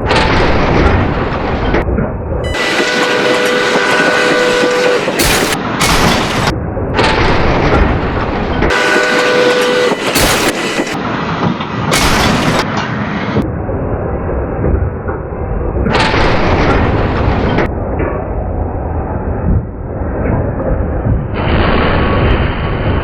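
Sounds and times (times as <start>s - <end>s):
train rumbling and hissing: 0.0s - 23.0s
train horn chord: 2.4s - 6.5s, 8.7s - 11.0s.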